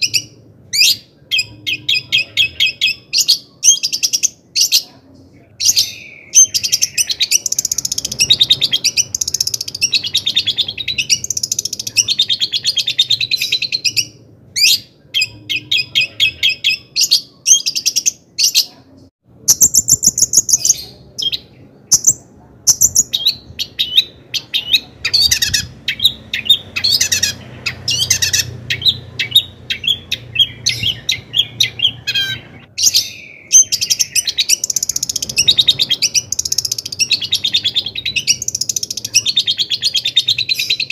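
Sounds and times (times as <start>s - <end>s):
shrike chattering and trilling: 5.7s - 18.7s, 19.5s - 40.9s.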